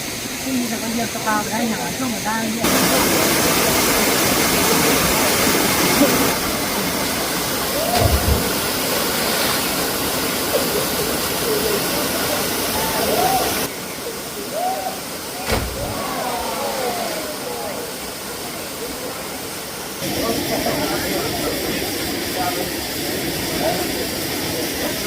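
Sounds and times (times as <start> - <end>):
waterfall roaring: 0.0 - 25.0
faint voices: 10.4 - 25.0.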